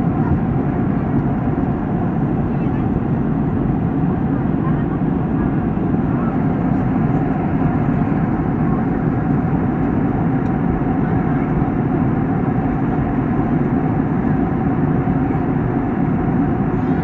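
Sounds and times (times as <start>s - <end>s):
jet engine drone: 0.0s - 17.0s.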